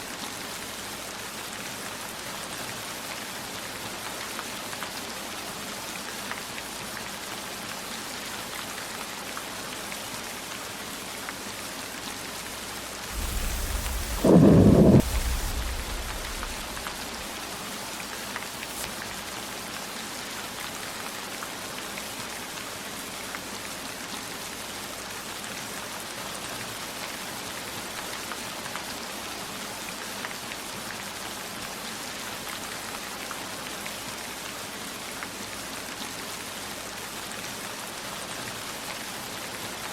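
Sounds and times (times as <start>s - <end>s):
heavy rain: 9.4s - 28.9s
thunder clap: 13.1s - 17.4s.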